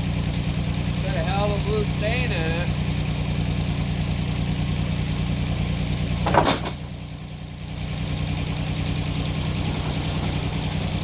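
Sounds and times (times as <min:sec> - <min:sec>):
sawmill engine running: 0:00.0 - 0:11.0
loud clatter: 0:06.2 - 0:06.9.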